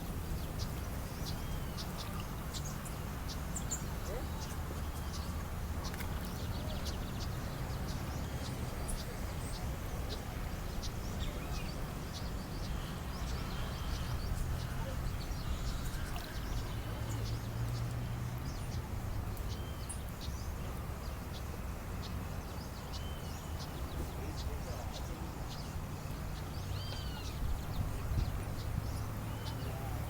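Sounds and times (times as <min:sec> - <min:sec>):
small birds chirping: 0:19.4 - 0:30.0.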